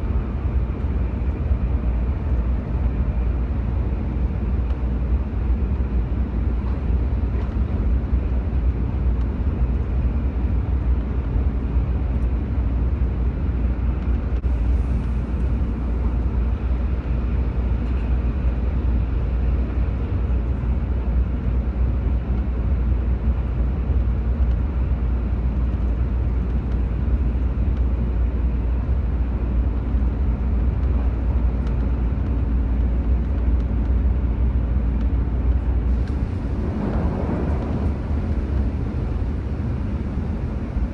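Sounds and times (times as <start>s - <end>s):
moving vehicle rumble: 0.0s - 40.9s
road or wind noise: 0.0s - 40.9s.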